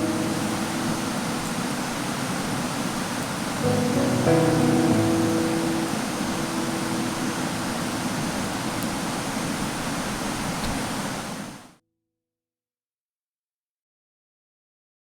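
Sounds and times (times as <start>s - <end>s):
background music note ringing: 0.0s - 2.9s, 3.6s - 9.3s
steady rushing noise: 0.0s - 11.6s.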